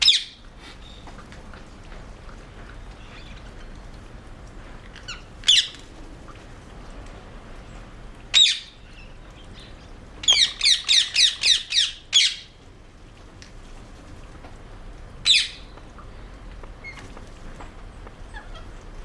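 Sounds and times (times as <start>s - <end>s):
parakeets squawking: 0.0s - 0.4s, 5.0s - 5.8s, 8.4s - 8.7s, 10.2s - 12.5s, 15.2s - 15.7s.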